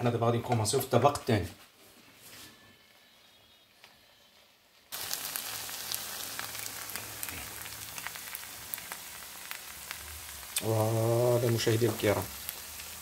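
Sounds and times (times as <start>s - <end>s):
rice sizzling in a pan: 4.9s - 13.0s.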